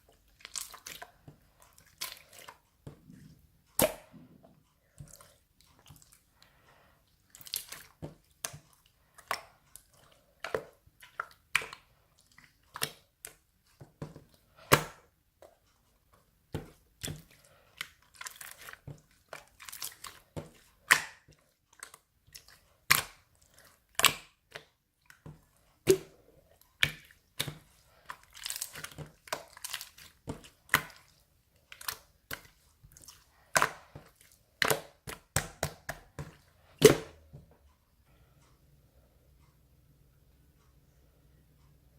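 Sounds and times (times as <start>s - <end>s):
slime crinkling and crunching: 17.0s - 21.0s, 26.7s - 35.4s.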